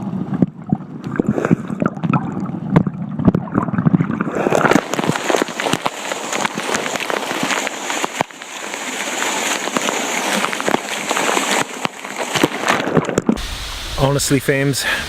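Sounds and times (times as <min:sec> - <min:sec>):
waterfall rushing and splashing: 0:04.5 - 0:15.0.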